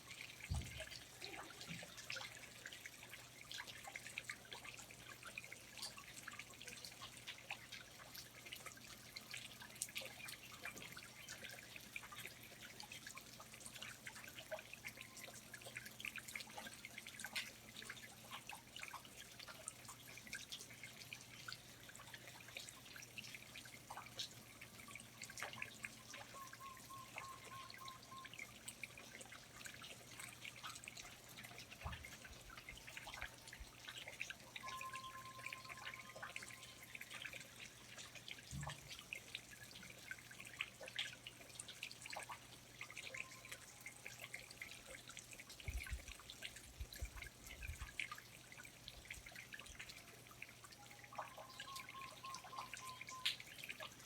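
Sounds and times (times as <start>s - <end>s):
water dripping from foliage: 0.0s - 54.0s
faint tonal calls: 25.2s - 28.7s, 34.4s - 37.9s, 43.0s - 44.1s, 50.8s - 53.6s.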